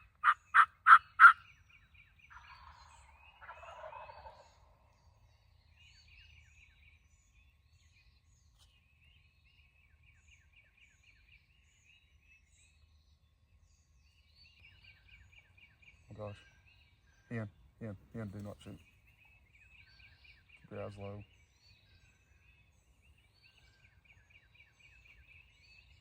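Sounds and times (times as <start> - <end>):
turkey gobble: 0.0 - 1.4, 2.3 - 4.9
turkey yelps: 0.0 - 1.4, 2.3 - 4.4
songbirds chirping faintly: 0.0 - 26.0.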